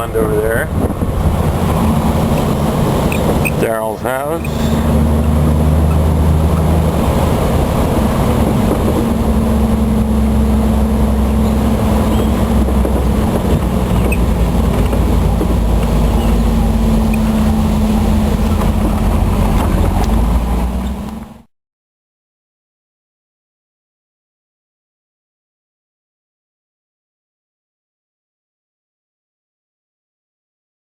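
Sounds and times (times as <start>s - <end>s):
vehicle engine humming: 0.0s - 21.5s.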